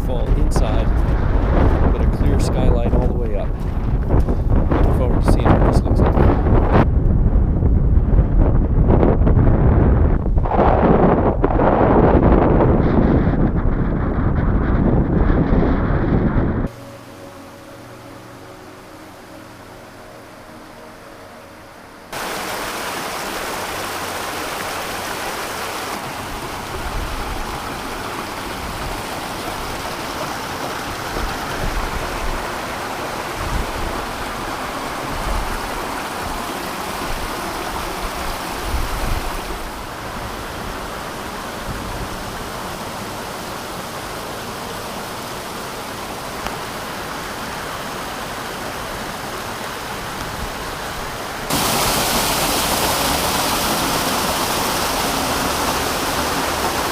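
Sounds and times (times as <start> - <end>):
wind buffeting microphone: 0.0 - 16.8, 25.8 - 42.9
waterfall water rushing: 16.7 - 56.9.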